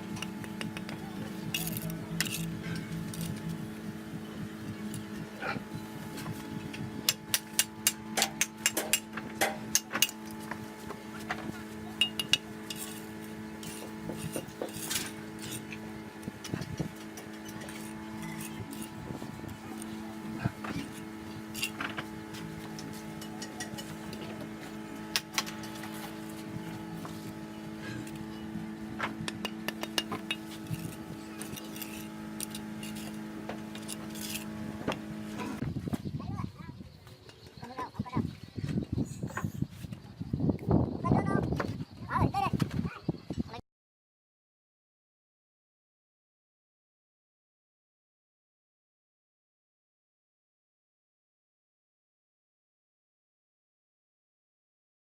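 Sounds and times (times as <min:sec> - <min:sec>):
low hum: 0:00.0 - 0:35.9
hand tools tapping on masonry: 0:00.2 - 0:01.0, 0:07.1 - 0:10.2, 0:29.0 - 0:34.2
metal hand tools clinking: 0:01.5 - 0:03.4, 0:12.0 - 0:15.7, 0:20.8 - 0:21.9, 0:29.4 - 0:34.6.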